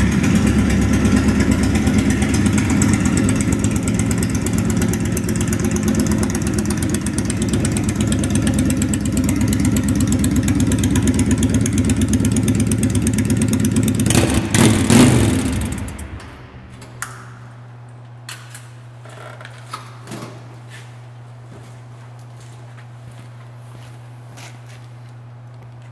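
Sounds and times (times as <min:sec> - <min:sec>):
motorcycle engine idling: 0:00.0 - 0:16.7
steady low hum: 0:00.0 - 0:25.9.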